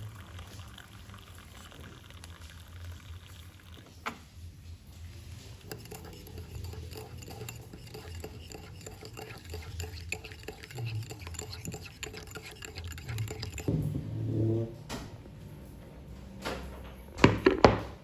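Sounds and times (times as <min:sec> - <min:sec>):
utensils clinking on dishes: 0:05.4 - 0:13.7.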